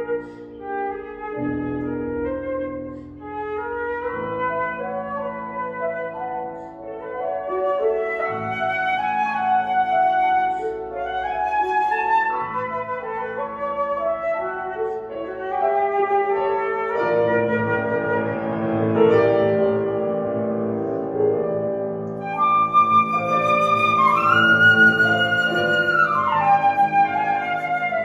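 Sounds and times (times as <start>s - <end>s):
flute melody: 0.0s - 28.0s
piano chords: 0.0s - 28.0s.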